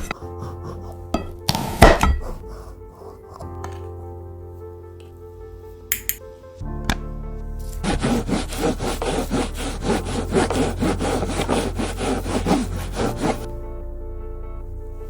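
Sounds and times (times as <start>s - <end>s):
background music: 0.0s - 15.0s
rapid scraping strokes: 7.6s - 13.5s.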